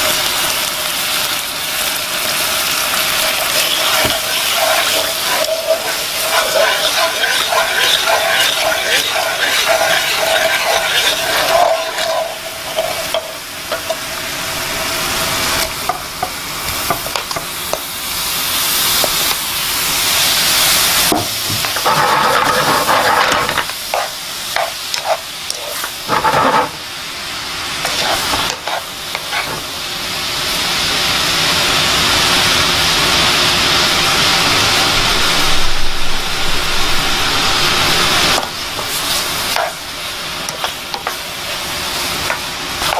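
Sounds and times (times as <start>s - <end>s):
chutney sizzling in a pan: 0.0s - 42.9s
stirring strokes: 3.2s - 14.0s, 21.6s - 26.8s, 27.9s - 29.7s, 37.6s - 42.9s.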